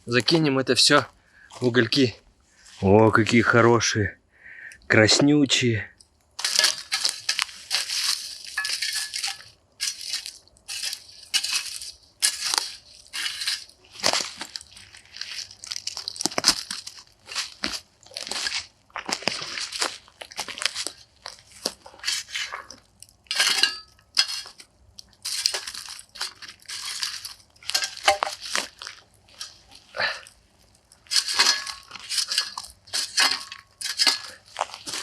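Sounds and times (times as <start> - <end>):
aluminium foil crinkling: 6.2 - 35.0.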